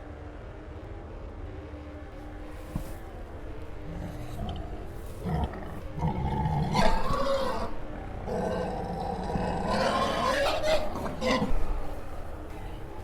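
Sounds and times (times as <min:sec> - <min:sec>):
dinosaur roars and growls: 0:03.4 - 0:13.0.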